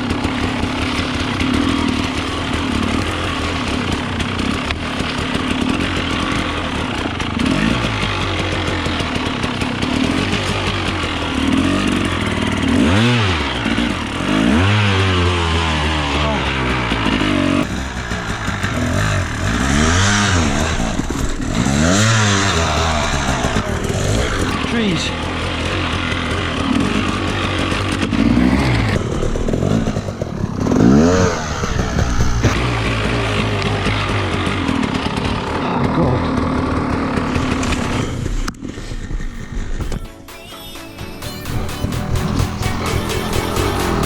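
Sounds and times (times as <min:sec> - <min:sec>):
dirt bike engine revving: 0:00.0 - 0:40.3, 0:41.2 - 0:44.0.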